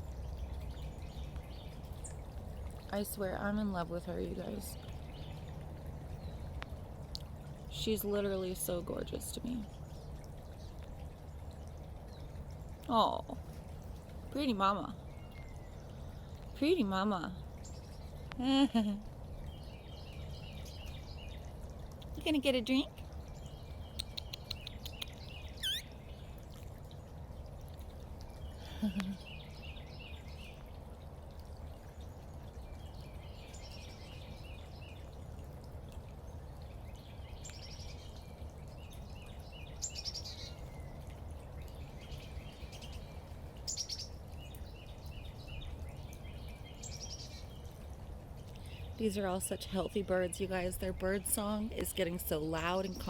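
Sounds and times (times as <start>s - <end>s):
songbirds singing: 0.0s - 53.0s
bird chip notes: 25.6s - 25.8s.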